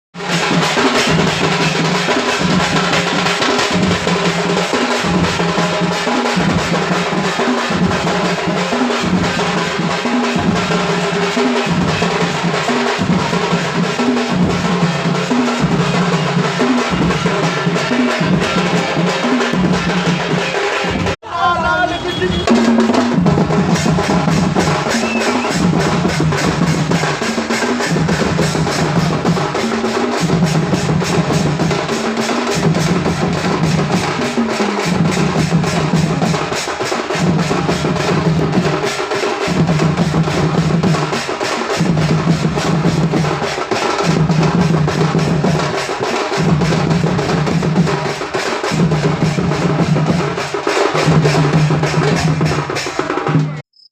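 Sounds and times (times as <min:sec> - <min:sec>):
fast loud drumming: 0:00.2 - 0:53.6.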